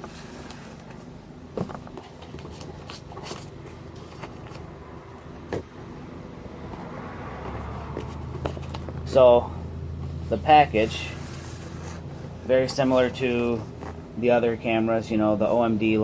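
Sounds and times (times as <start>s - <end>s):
cardboard packaging rustling: 0.0s - 5.7s, 10.0s - 14.5s
steady low hum: 0.0s - 16.0s.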